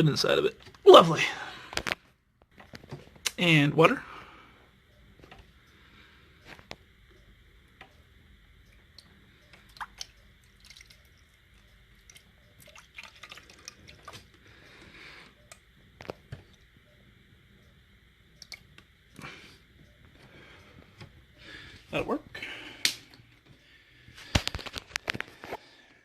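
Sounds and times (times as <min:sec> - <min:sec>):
water dripping and trickling: 0:08.7 - 0:14.3, 0:18.4 - 0:18.8.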